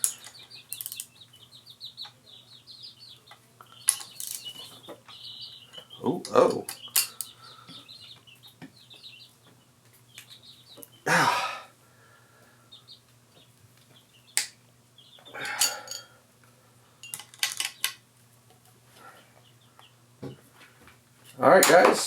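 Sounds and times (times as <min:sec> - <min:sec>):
birds chirping faintly: 0:00.0 - 0:22.0
metal hand tools clattering: 0:15.4 - 0:16.1.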